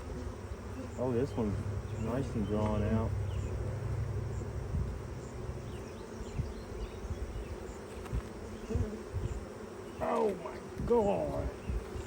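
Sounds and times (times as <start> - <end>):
bees buzzing: 0.0 - 12.0
soft low bumps: 0.5 - 9.4.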